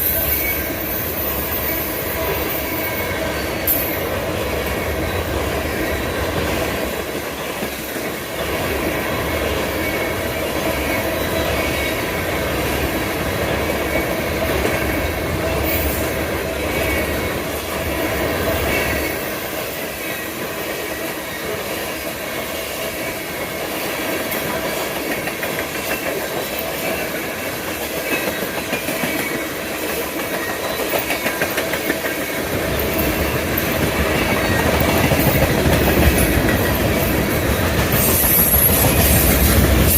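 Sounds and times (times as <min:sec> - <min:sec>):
train wheels clacking over rail joints: 0:00.0 - 0:39.9.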